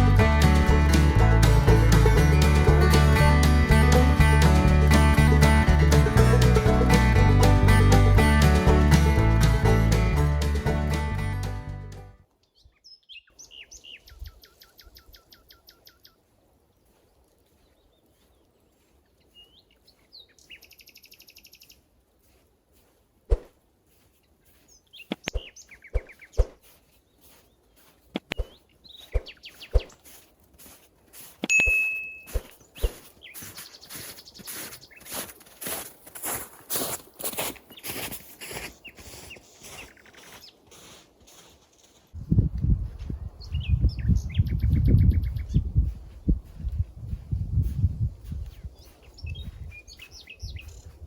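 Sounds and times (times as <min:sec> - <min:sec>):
birds singing trilled phrases: 0:48.8 - 0:51.0.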